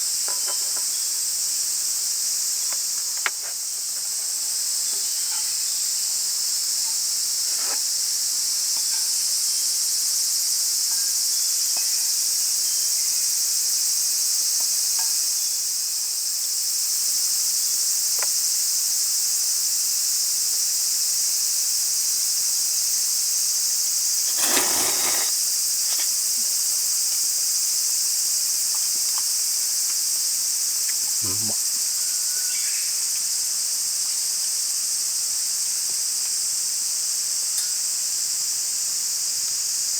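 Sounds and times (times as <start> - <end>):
insects chorus droning: 0.0 - 39.9
rustling clatter: 24.2 - 26.2.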